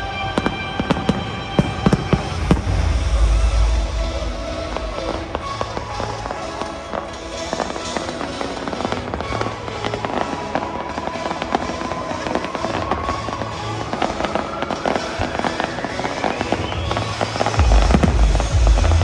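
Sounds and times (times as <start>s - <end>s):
rising whistle: 0.0s - 9.0s, 9.8s - 18.4s
fireworks crackling and popping: 0.0s - 19.0s
music playing: 0.0s - 19.0s
deep bass: 1.6s - 6.6s, 17.6s - 19.0s.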